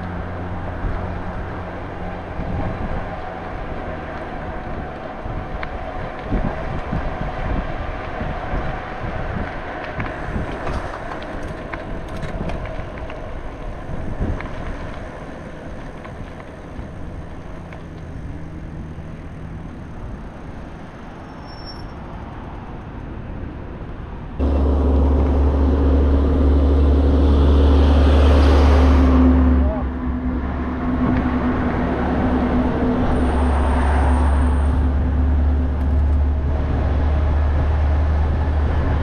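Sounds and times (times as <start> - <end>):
wind on microphone: 0.0 - 15.9, 24.4 - 39.0
road traffic: 0.0 - 39.0
low drone with hum: 24.4 - 33.6.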